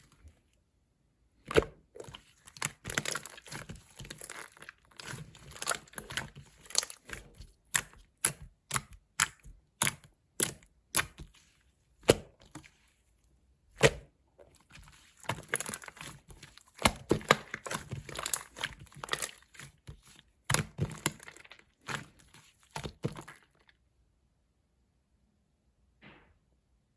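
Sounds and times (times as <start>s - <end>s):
slime clicking and popping: 2.5s - 11.3s.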